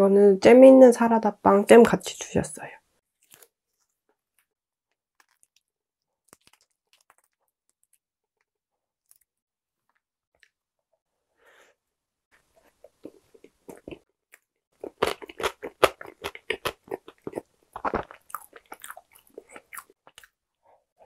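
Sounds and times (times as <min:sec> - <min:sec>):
biting into soft bread: 0:03.2 - 0:09.3
chewing: 0:03.2 - 0:09.3, 0:12.4 - 0:20.4.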